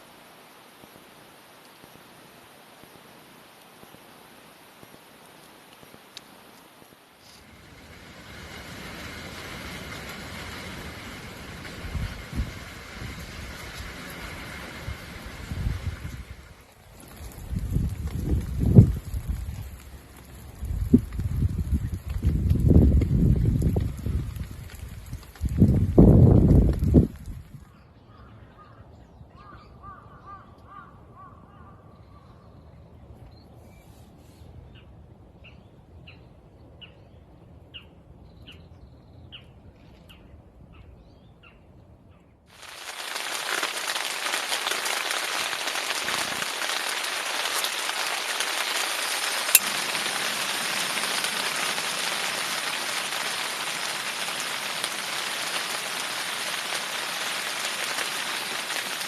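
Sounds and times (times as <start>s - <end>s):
heavy rain pouring: 4.3s - 27.5s, 42.5s - 59.0s.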